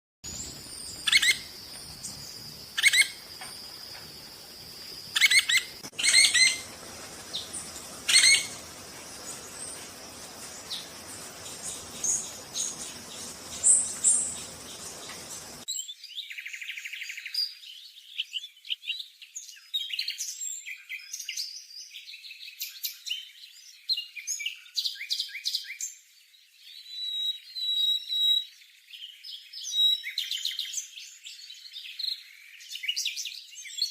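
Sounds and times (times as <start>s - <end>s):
woodpecker calling: 0.3s - 15.6s
fast chirps: 0.3s - 15.7s.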